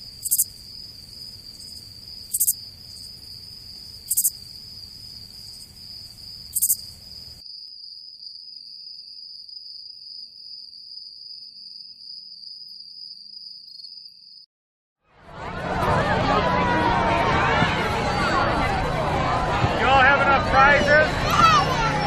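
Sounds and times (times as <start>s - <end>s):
background hiss: 0.0s - 7.4s
cricket trill: 0.0s - 14.4s
high insect buzz: 0.0s - 14.4s.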